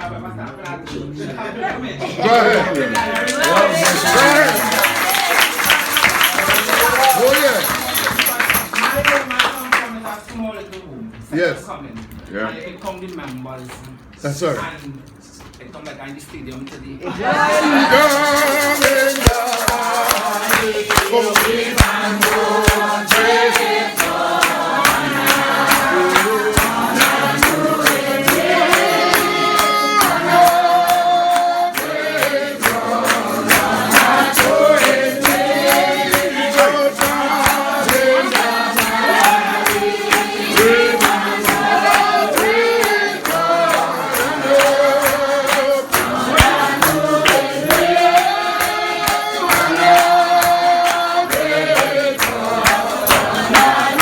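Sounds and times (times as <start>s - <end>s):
congregation singing a hymn: 2.2s - 9.2s, 17.1s - 54.0s
handclaps: 2.5s - 10.9s, 17.6s - 54.0s
tambourine: 3.9s - 10.2s, 17.5s - 54.0s.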